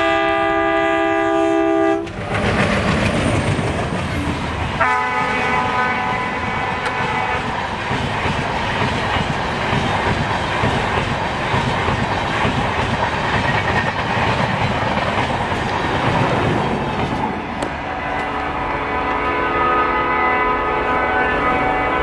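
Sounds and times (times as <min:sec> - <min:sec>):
train horn: 0:00.0 - 0:02.2, 0:04.8 - 0:07.6, 0:17.6 - 0:22.0
train coaches rumbling past: 0:00.0 - 0:22.0.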